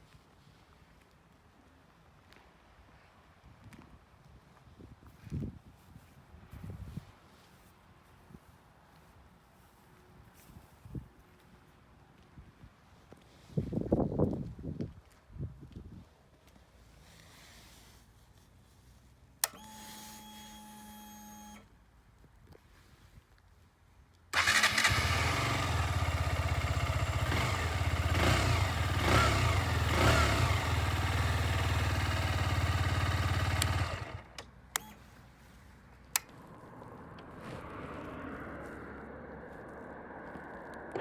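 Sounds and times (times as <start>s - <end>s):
motorcycle engine running: 24.4s - 34.4s
sharp clicks: 32.2s - 35.0s
switch click: 33.4s - 35.0s.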